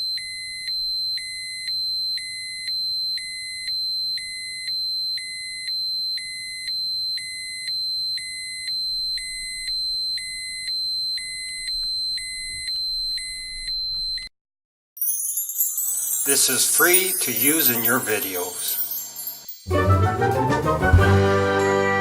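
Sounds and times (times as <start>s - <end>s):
piercing alarm tone: 0.0s - 14.3s, 15.8s - 19.8s
lower tone beeping: 8.2s - 14.3s.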